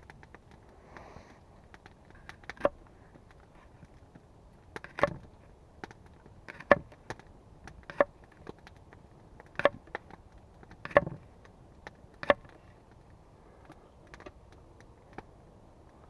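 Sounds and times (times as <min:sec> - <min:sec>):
tool striking wood: 0:10.8 - 0:11.2.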